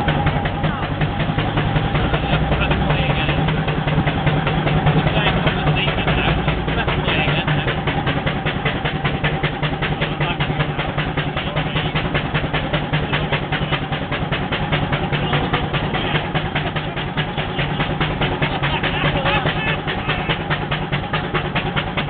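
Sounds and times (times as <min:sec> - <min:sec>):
running gear hum: 0:00.0 - 0:22.0
steam engine exhaust beats: 0:00.0 - 0:22.0.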